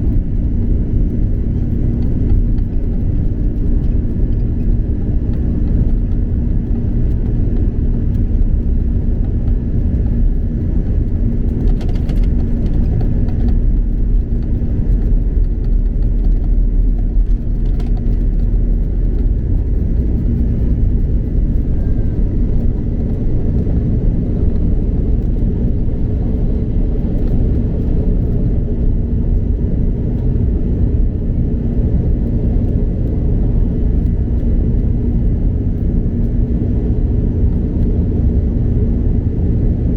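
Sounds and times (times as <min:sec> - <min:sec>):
airplane cabin engine rumble: 0:00.0 - 0:39.9
faint steady hum: 0:00.0 - 0:39.9.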